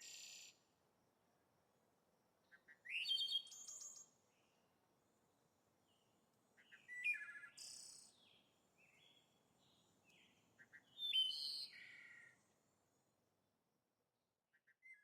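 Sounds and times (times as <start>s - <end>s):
songbird chirping: 5.8s - 12.4s.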